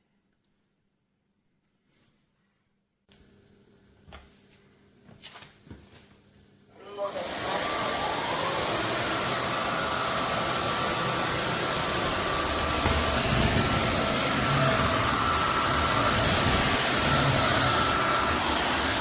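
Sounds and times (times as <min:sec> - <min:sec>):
vacuum cleaner running: 0:06.7 - 0:19.0.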